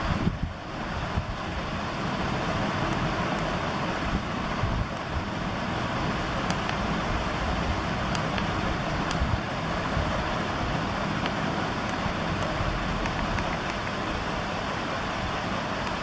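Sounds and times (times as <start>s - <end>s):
rushing wind: 0.0s - 15.8s
road noise: 0.0s - 16.0s.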